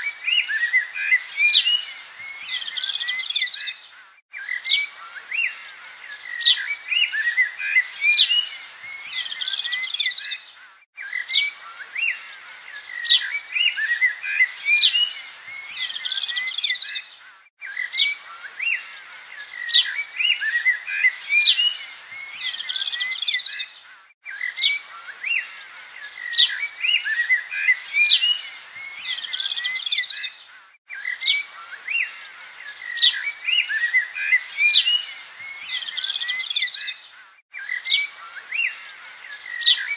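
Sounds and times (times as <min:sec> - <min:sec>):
birds chirping and whistling: 0:00.0 - 0:39.9.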